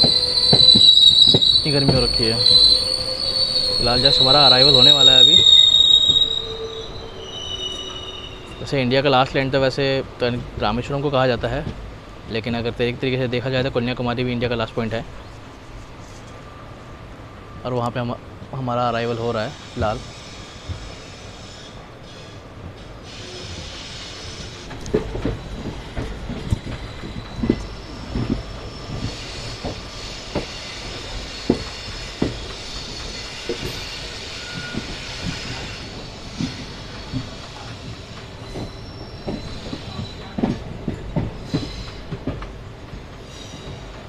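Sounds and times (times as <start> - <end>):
train wheels knocking over rail joints: 0.0 - 6.4, 19.7 - 21.0, 23.1 - 44.0
high wheel squeal: 0.0 - 9.2, 19.0 - 42.2, 43.2 - 44.0.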